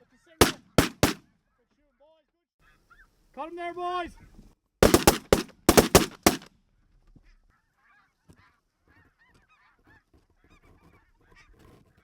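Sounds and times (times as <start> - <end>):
shotgun blast: 0.4 - 1.2, 4.8 - 6.5.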